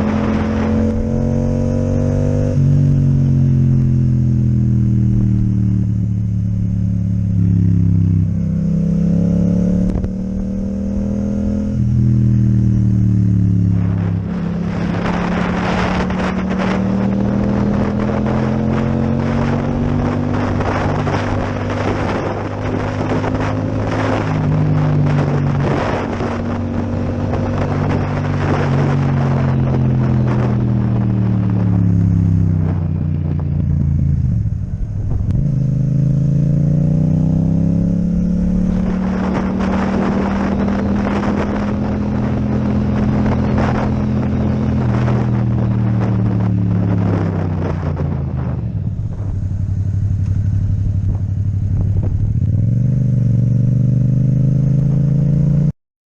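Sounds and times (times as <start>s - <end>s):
motorcycle engine running: 0.0s - 55.7s
rough rushing noise with crackles: 12.2s - 36.9s, 38.0s - 53.9s.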